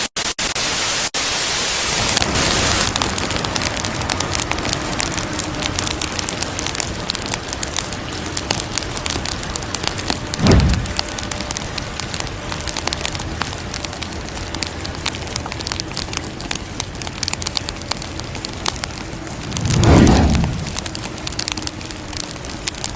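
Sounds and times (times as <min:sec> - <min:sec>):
bright hiss: 0:00.0 - 0:02.9
wood fire crackling and popping: 0:01.9 - 0:22.9
low whoosh: 0:10.4 - 0:11.0, 0:19.2 - 0:21.0.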